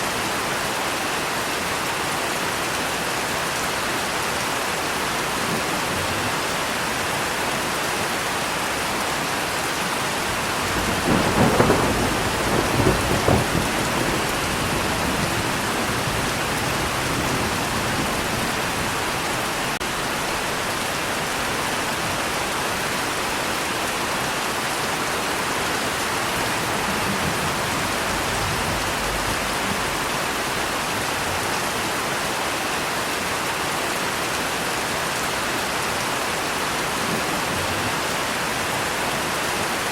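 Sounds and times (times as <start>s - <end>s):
steady rain falling: 0.0s - 39.9s
thunder rumbling: 10.2s - 20.6s, 26.1s - 31.4s.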